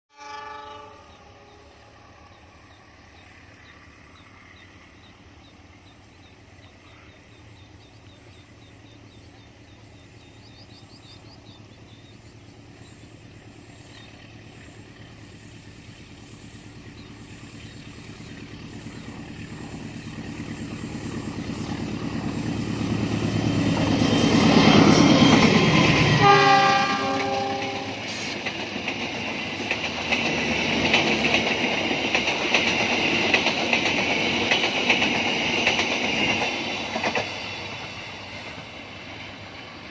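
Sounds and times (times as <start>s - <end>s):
train horn: 0.1s - 2.5s, 26.0s - 28.3s
diesel train rumble: 0.2s - 39.9s.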